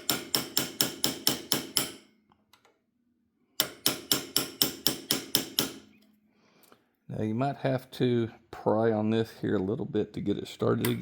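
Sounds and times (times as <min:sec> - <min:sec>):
hammer tapping metal punch: 0:00.0 - 0:02.1, 0:03.6 - 0:05.9.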